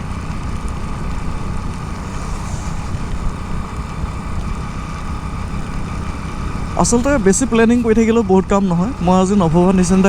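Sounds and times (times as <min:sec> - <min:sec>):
motorcycle engine running: 0:00.0 - 0:10.0
rain on microphone: 0:00.0 - 0:10.0
wind on microphone: 0:00.8 - 0:07.3.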